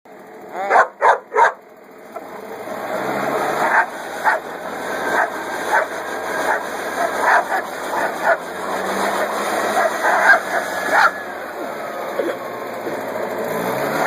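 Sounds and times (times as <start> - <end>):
dog yapping: 0.6 - 1.6, 3.6 - 4.5, 5.1 - 8.5, 9.2 - 11.2.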